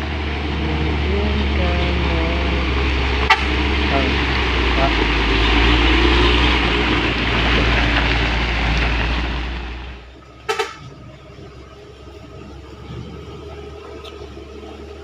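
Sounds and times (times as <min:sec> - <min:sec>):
truck engine under load: 0:00.0 - 0:15.0
horn toots: 0:00.6 - 0:06.8, 0:10.4 - 0:11.2.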